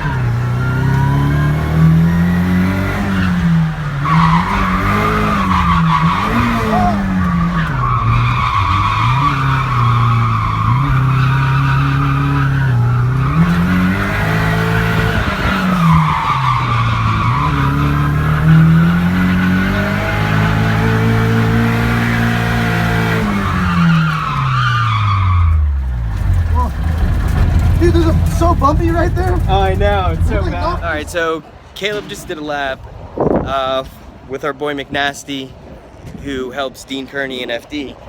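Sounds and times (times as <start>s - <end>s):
car engine revving: 0.0s - 31.3s
tyre squeal: 3.0s - 21.6s, 23.0s - 31.2s.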